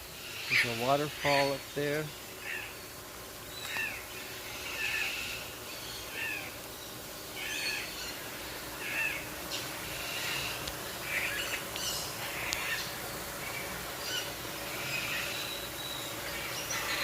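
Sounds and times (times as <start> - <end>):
other birds chirping: 0.2 - 17.0.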